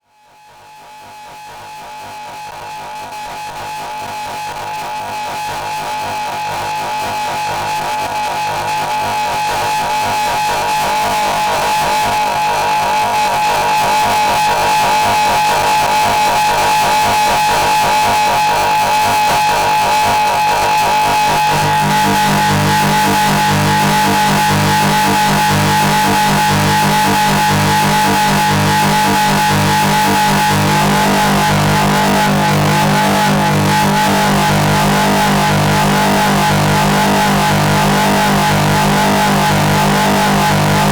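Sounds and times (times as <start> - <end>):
droning noise music: 21.4 - 40.9
low rapidly pulsing layer: 21.7 - 40.9
steady high tone: 21.7 - 40.9.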